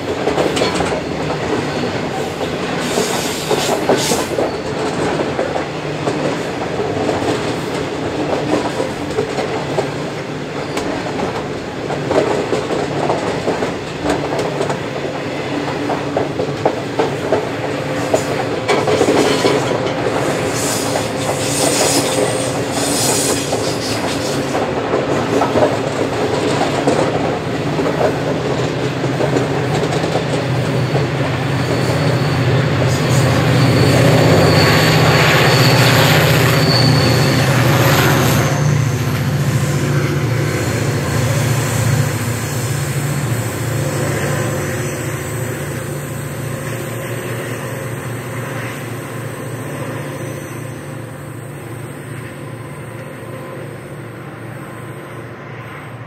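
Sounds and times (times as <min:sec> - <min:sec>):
diesel locomotive engines: 0:00.0 - 0:56.0
thin wheel squeal: 0:31.4 - 0:39.2.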